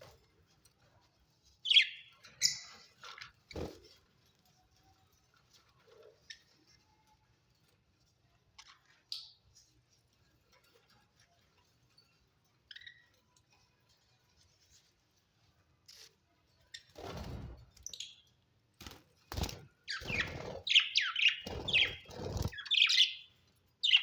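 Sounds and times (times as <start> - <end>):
budgies chirping: 1.6 - 2.8, 19.4 - 24.0.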